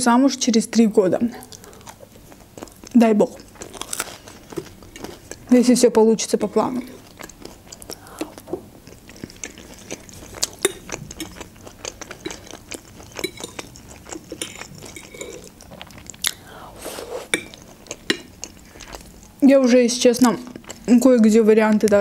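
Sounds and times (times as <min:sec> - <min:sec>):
person chewing wet mouth clicks: 0:07.0 - 0:16.5, 0:17.3 - 0:19.4.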